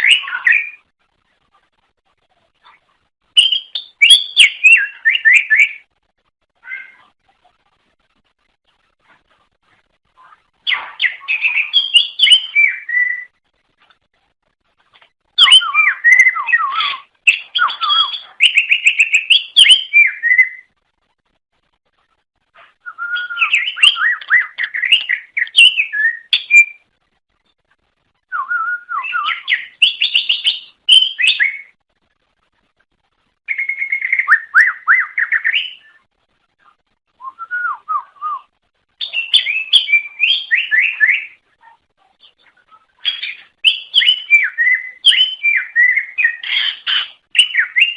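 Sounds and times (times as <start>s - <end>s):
bird singing whistled notes: 0.0s - 0.9s, 3.4s - 5.9s, 10.7s - 13.4s, 15.4s - 20.7s, 22.8s - 26.8s, 28.3s - 31.8s, 33.5s - 36.0s, 37.2s - 41.4s, 42.7s - 47.9s.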